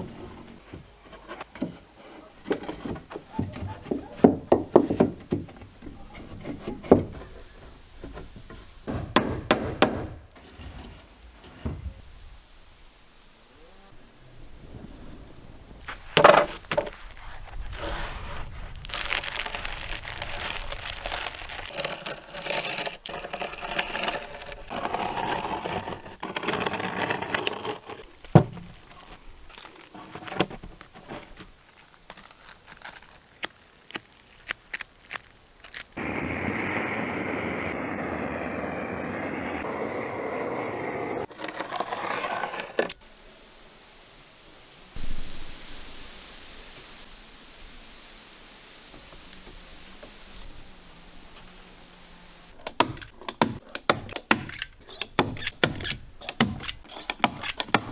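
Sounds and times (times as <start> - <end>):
hand tool scraping wood: 0.0 - 12.0, 15.9 - 36.1, 41.2 - 43.0, 52.5 - 57.9
steady tool noise: 52.5 - 57.9
sharp knocks and taps: 52.6 - 57.9.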